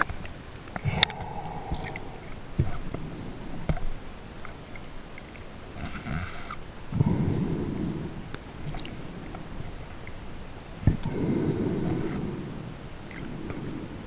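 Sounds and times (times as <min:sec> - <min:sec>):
steady low underwater hiss: 0:00.0 - 0:14.0
short gurgles: 0:00.8 - 0:02.9.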